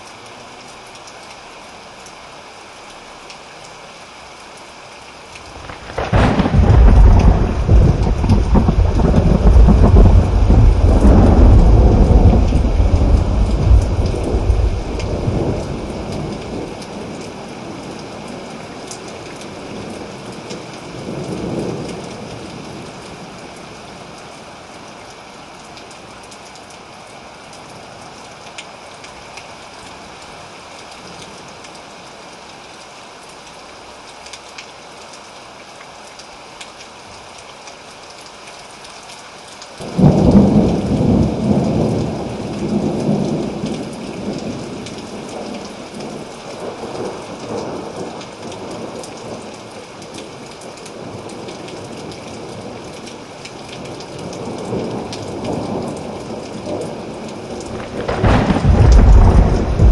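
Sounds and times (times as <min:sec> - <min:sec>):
steady rain hiss: 0:00.0 - 0:59.9
thunder rumbling: 0:05.6 - 0:16.7, 0:39.8 - 0:43.6, 0:57.6 - 0:59.9.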